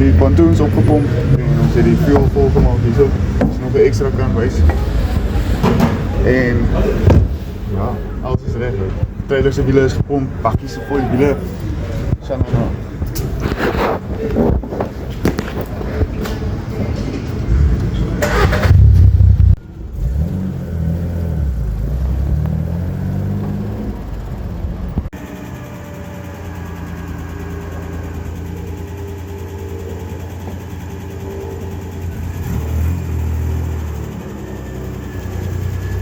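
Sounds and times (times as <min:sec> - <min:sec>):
vehicle engine accelerating: 0:00.0 - 0:10.7, 0:11.4 - 0:36.0
engine droning while cruising: 0:00.0 - 0:36.0.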